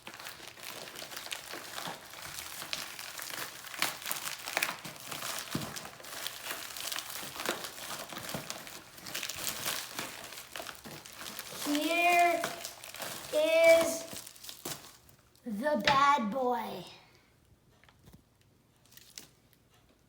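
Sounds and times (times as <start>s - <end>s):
plastic and paper packaging crinkling: 0.0s - 15.5s, 18.8s - 19.4s.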